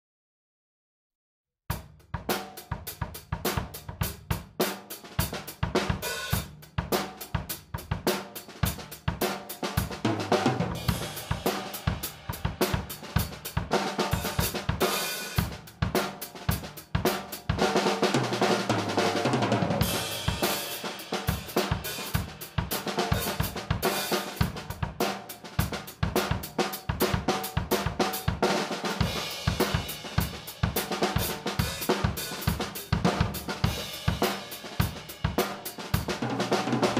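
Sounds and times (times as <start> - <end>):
snare drum: 1.7 - 36.9
bass drum: 5.2 - 36.9
cymbals: 8.5 - 36.1.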